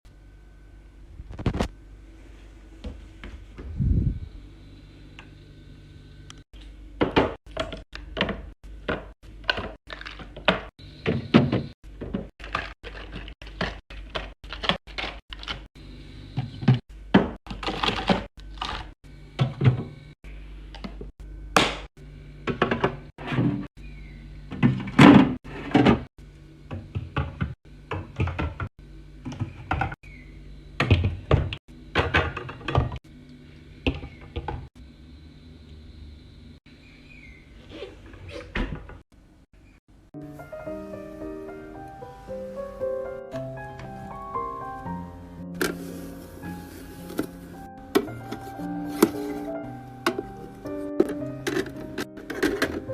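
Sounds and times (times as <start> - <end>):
items thunking and knocking: 7.0 - 15.7, 16.4 - 20.1, 20.8 - 23.7, 24.5 - 30.0, 30.8 - 33.0, 33.8 - 34.7, 45.5 - 52.9.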